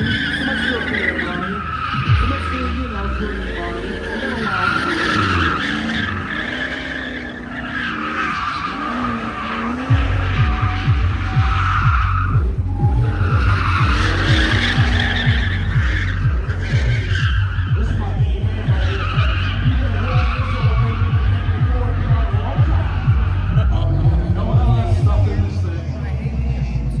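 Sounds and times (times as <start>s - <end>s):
tyres squealing: 0.0s - 25.6s
car engines revving: 0.0s - 27.0s
thumping bass beat: 1.9s - 2.5s, 8.7s - 25.7s.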